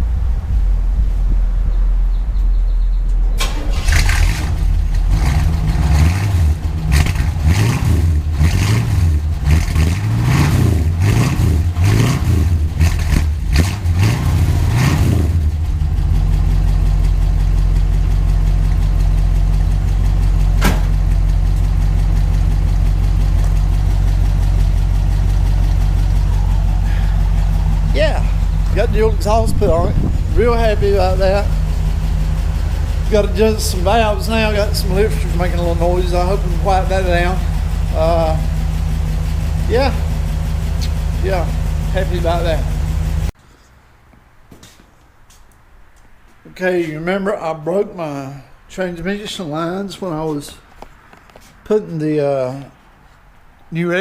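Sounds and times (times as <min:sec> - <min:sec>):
car engine revving and idling: 0:00.0 - 0:43.4
man talking: 0:27.9 - 0:31.6, 0:33.0 - 0:38.5, 0:39.6 - 0:40.1, 0:40.8 - 0:42.8, 0:46.5 - 0:50.6, 0:51.6 - 0:52.8, 0:53.7 - 0:54.0.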